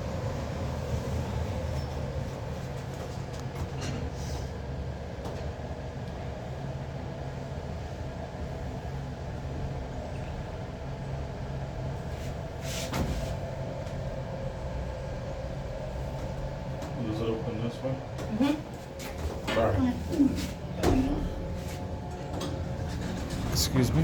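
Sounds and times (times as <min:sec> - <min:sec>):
large vehicle engine rumble: 0:20.2 - 0:24.0.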